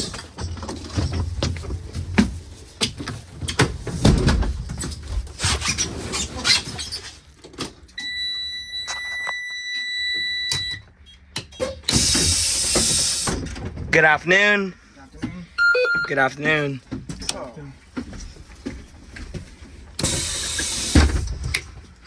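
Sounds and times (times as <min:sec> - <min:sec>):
irregular knocks and clatter: 0:00.0 - 0:05.4, 0:16.5 - 0:20.0.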